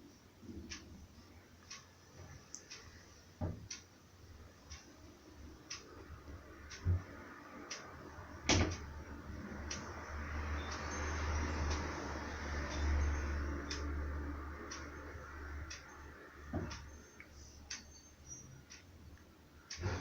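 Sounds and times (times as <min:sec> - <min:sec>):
ceiling fan running: 0:00.0 - 0:20.0
faint regular tick: 0:00.5 - 0:00.9, 0:01.6 - 0:03.0, 0:03.6 - 0:03.9, 0:04.7 - 0:04.9, 0:05.7 - 0:06.1, 0:13.7 - 0:13.9.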